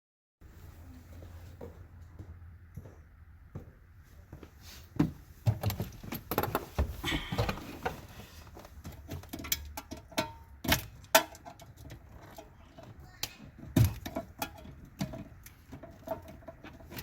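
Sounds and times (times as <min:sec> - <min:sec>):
metal tools clinking and knocking: 0:08.8 - 0:12.9.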